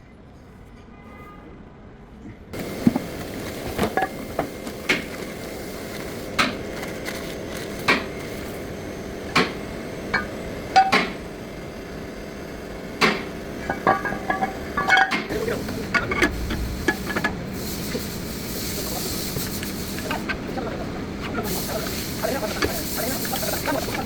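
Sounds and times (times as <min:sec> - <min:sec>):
metal tools knocking on brake parts: 0:13.1 - 0:17.3.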